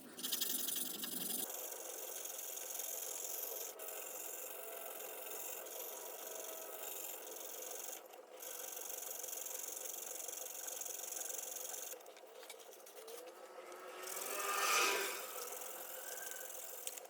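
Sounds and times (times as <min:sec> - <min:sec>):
hand rubbing and scraping metal: 0:11.7 - 0:17.0.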